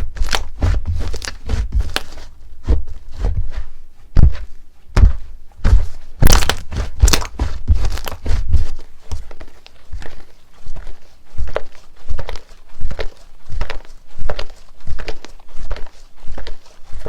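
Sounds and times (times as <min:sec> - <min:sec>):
hands squeezing slime: 0:00.0 - 0:02.3, 0:06.2 - 0:17.0.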